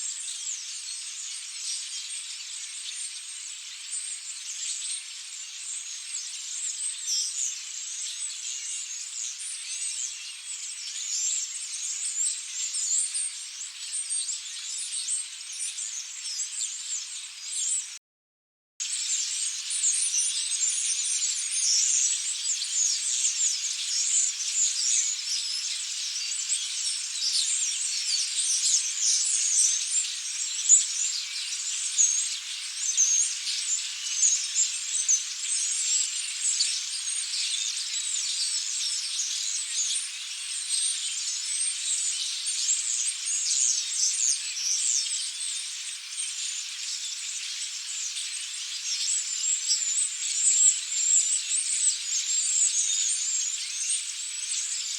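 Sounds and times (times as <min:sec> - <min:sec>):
flock of starlings chattering: 0:18.8 - 0:54.9.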